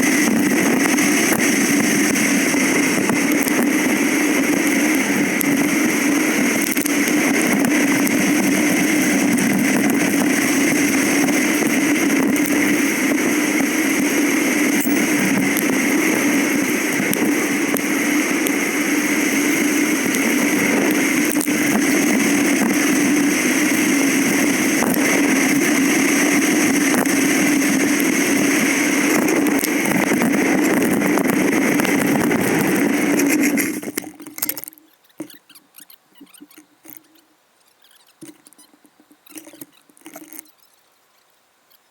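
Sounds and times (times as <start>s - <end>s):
motorcycle engine running: 0.0s - 34.0s
faint clicks: 31.8s - 41.9s.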